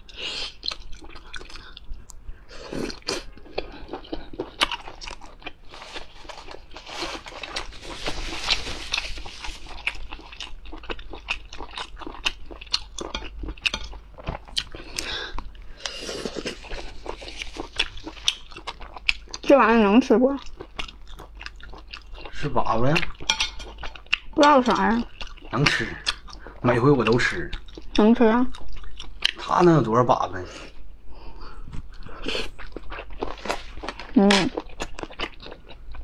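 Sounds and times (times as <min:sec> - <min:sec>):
chewing and biting: 0:02.8 - 0:15.1, 0:15.8 - 0:19.5.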